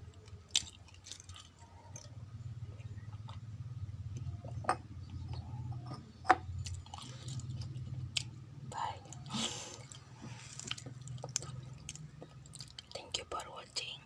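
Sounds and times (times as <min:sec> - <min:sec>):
chewing raw rice: 0:00.2 - 0:02.2, 0:06.6 - 0:08.3, 0:09.0 - 0:13.0.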